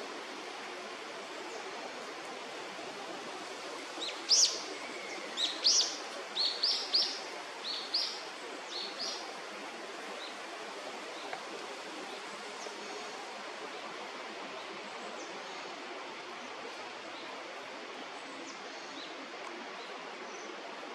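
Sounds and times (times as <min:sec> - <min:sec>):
steady background hiss: 0:00.0 - 0:20.9.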